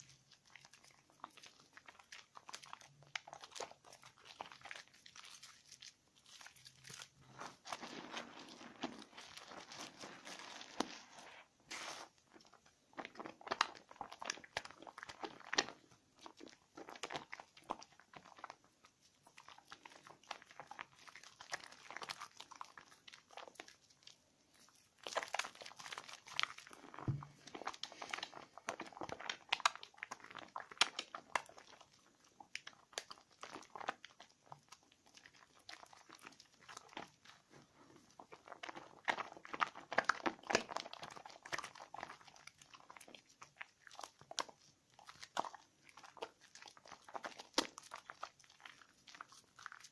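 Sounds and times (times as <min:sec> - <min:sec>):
soap lathering by hand: 0:00.0 - 0:49.9.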